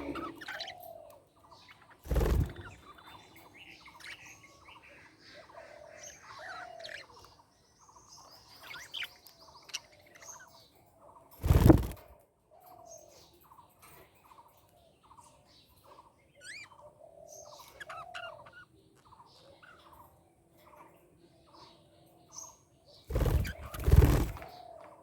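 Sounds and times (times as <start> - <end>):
budgerigars chirping: 0.0 - 1.0, 16.4 - 18.7, 23.1 - 24.5.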